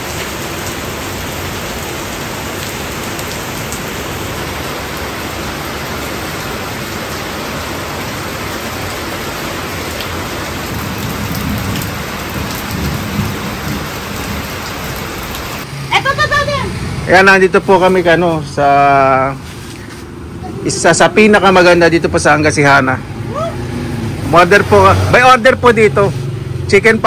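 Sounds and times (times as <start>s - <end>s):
rain falling on leaves: 0.0s - 15.7s.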